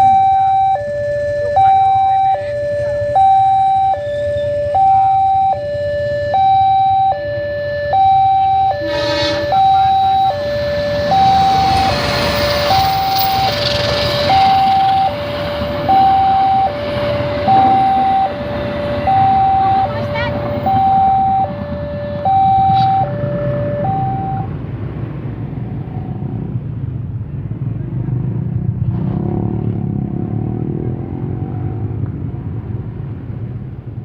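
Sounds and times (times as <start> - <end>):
level crossing two-tone alarm: 0.0 - 24.5
train horn blast: 8.7 - 10.2, 17.0 - 24.5
train rumbling past: 8.7 - 34.0.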